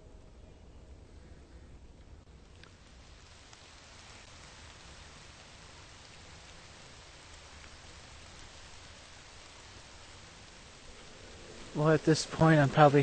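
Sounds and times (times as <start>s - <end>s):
steady rain hiss: 0.0s - 13.0s
raindrops ticking: 2.0s - 13.0s.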